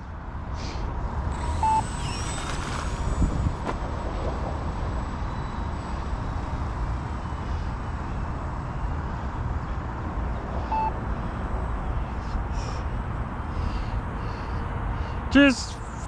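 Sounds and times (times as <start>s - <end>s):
rc plane motor whine: 1.2s - 8.8s
short electronic beep: 1.6s - 2.3s, 10.7s - 10.9s
wind on microphone: 2.3s - 4.0s.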